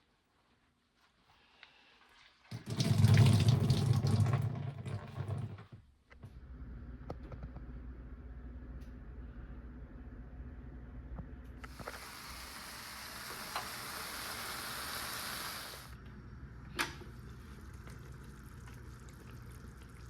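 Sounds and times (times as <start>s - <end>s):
water gushing: 2.5s - 5.6s, 11.7s - 16.0s.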